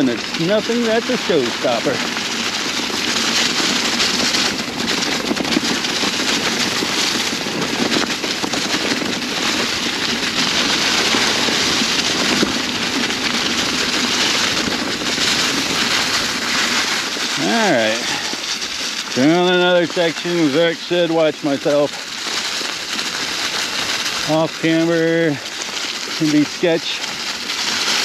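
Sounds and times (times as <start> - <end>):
bike tyres rolling over dry leaves: 0.0 - 28.0.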